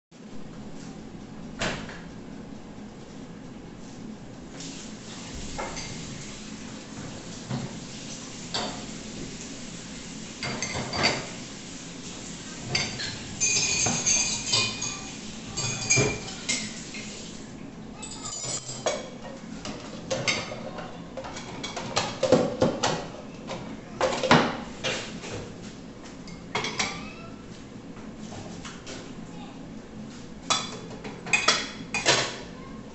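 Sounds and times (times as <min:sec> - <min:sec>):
dishes clinking: 0:08.5 - 0:08.9, 0:10.4 - 0:11.4, 0:12.6 - 0:17.1, 0:18.0 - 0:23.1, 0:26.3 - 0:27.2, 0:30.5 - 0:32.4.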